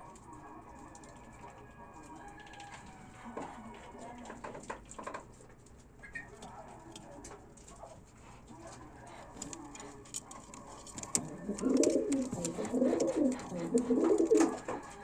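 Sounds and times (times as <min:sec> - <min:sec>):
pigeon cooing: 0:11.0 - 0:15.0.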